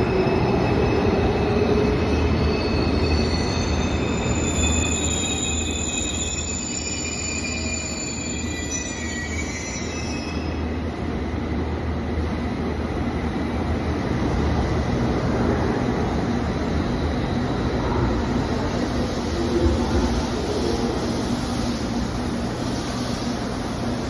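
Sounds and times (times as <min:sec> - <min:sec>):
train wheels squealing: 0:00.0 - 0:10.8
train rumbling: 0:00.0 - 0:24.0.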